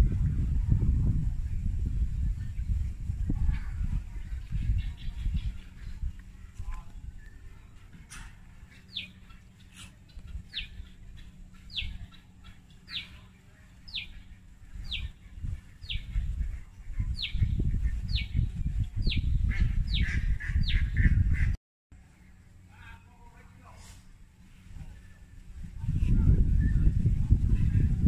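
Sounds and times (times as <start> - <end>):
bird chirping: 8.6 - 16.4, 17.0 - 21.2.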